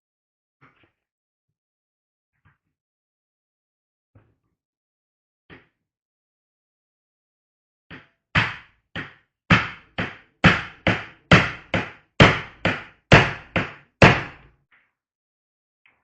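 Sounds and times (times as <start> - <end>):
hammer knocking on wood: 8.4 - 14.5.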